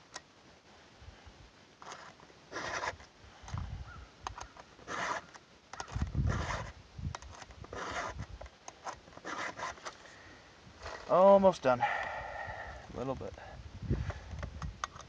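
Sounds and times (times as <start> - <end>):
file scraping saw chain: 1.8 - 3.0, 4.8 - 5.3, 6.3 - 6.7, 7.7 - 8.2, 9.2 - 9.9.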